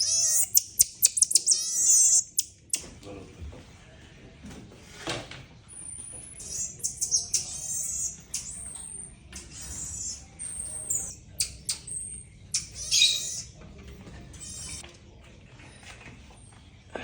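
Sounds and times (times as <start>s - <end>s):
monkey squeaky chirps and whistles: 0.0s - 2.8s, 6.4s - 13.5s, 14.4s - 14.8s.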